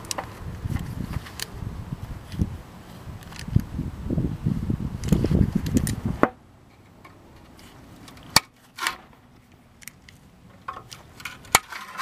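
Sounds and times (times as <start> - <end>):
microphone handling rumble: 0.0 - 6.4
metallic clicks and knocks: 6.8 - 12.0.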